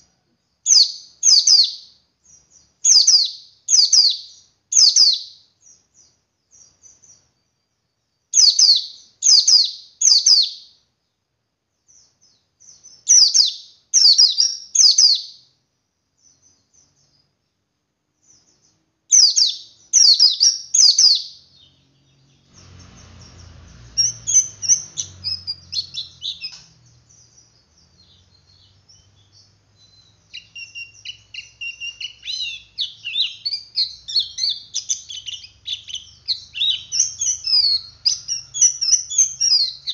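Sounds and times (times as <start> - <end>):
bird twittering rapidly: 0.7 - 7.2, 8.3 - 10.7, 12.6 - 15.4, 19.1 - 39.9
low rumble: 22.2 - 26.2.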